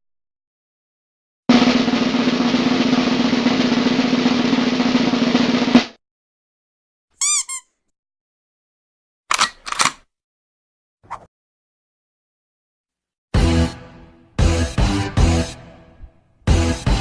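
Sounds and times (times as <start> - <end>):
snare drum roll: 1.5 - 6.0.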